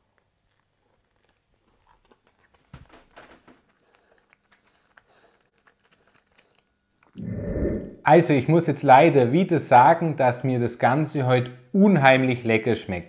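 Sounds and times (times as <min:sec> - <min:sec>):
faint chewing mouth clicks: 0:00.0 - 0:02.7, 0:03.5 - 0:07.2.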